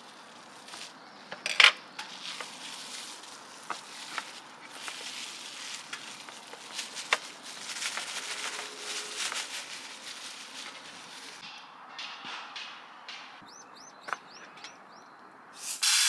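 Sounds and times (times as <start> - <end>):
food sizzling in a pan: 15.6 - 16.0.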